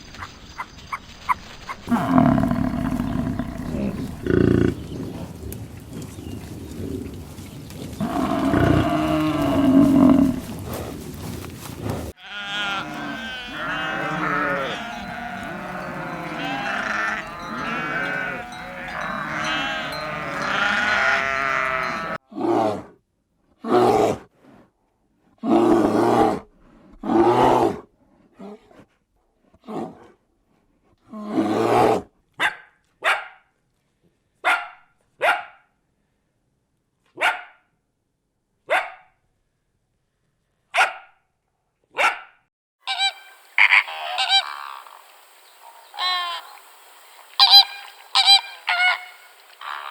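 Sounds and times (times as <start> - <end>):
animal calls: 1.3 - 5.4, 7.8 - 11.0, 11.8 - 22.2, 42.9 - 49.9.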